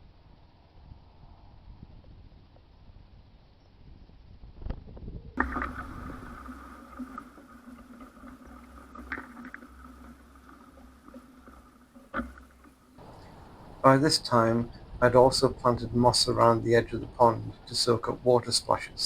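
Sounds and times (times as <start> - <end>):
steady electronic hum: 5.3 - 19.0
water splashing as bird bathes: 5.4 - 13.9.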